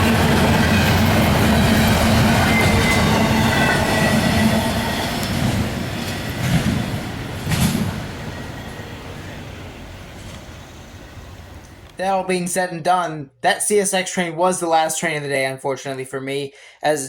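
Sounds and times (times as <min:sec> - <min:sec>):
train clanks: 0:00.0 - 0:12.0
train wheels rumbling on rails: 0:00.0 - 0:12.0.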